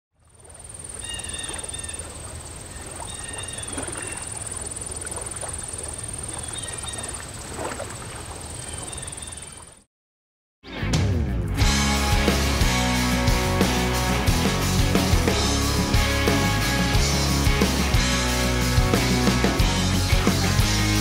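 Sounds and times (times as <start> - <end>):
birds calling: 0.6 - 9.8.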